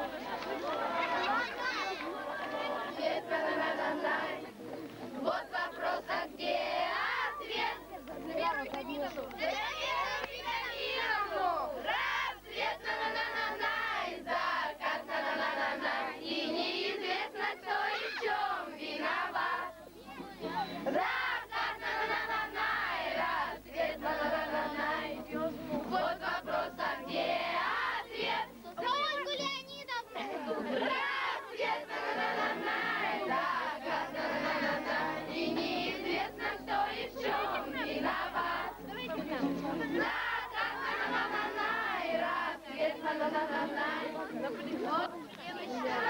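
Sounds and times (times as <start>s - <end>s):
children singing and calling out: 0.0s - 46.0s.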